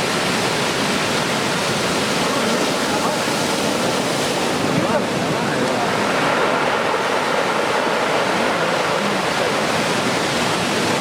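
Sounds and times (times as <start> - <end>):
heavy surf breaking on beach: 0.0 - 11.0.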